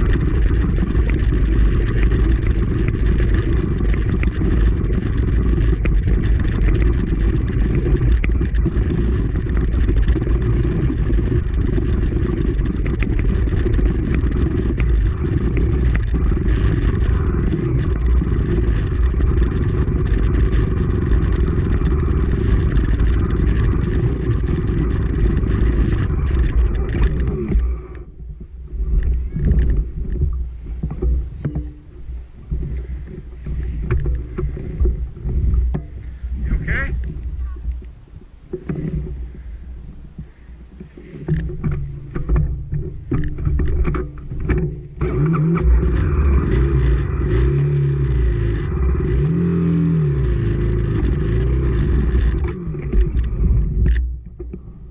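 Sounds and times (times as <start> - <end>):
dirt bike engine running: 0.0 - 54.9
uneven low rumbling: 0.0 - 54.9.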